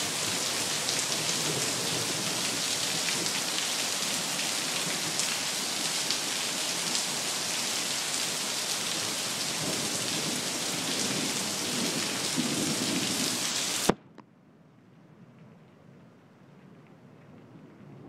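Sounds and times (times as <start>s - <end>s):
heavy rain pouring: 0.0s - 14.0s
low thunder rumbling: 9.0s - 13.4s.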